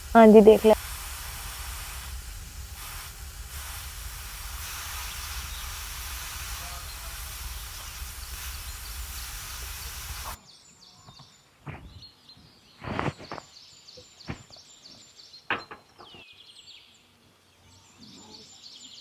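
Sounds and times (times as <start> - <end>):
birds chirping: 0.0 - 0.8, 5.2 - 19.0
loud rushing hiss: 0.0 - 10.4.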